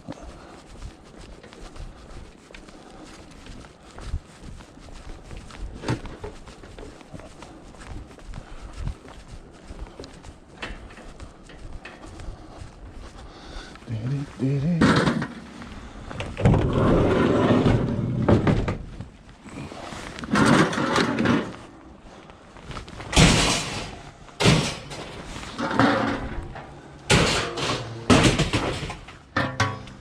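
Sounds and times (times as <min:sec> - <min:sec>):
heavy objects banging and scraping: 0:14.6 - 0:19.0, 0:19.7 - 0:21.8, 0:22.9 - 0:30.0.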